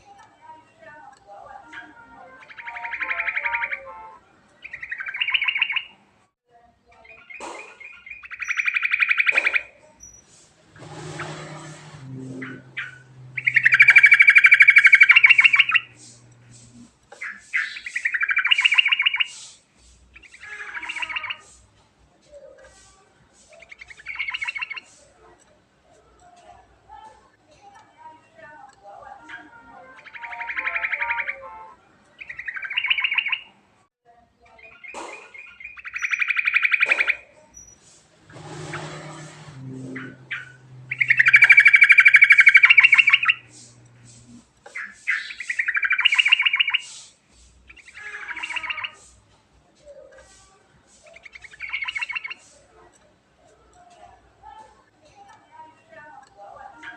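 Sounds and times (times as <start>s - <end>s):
bulbul song: 1.0s - 6.0s, 7.0s - 21.7s, 22.6s - 25.2s, 28.5s - 33.6s, 34.6s - 49.2s, 50.2s - 52.7s
bird rolling trills: 7.7s - 19.4s, 35.4s - 47.0s.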